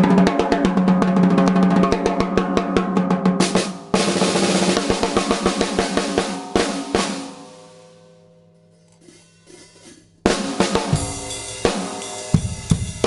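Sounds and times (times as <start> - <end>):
snare drum strokes: 3.3 - 7.8
bass drum: 10.3 - 13.0.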